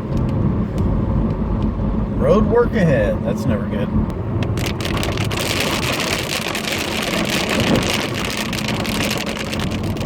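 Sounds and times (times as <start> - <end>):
car driving on wet road: 0.0 - 10.0
heavy rain drumming on car roof: 4.4 - 10.0.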